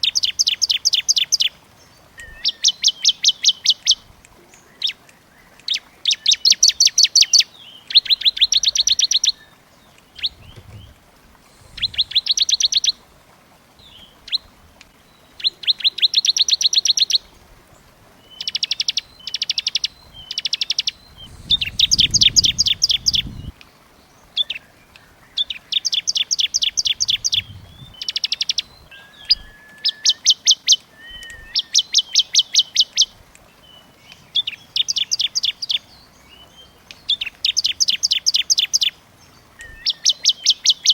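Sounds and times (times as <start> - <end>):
songbirds trilling: 0.0 - 40.9
low rumble: 10.3 - 12.3, 21.0 - 23.6, 27.2 - 28.0.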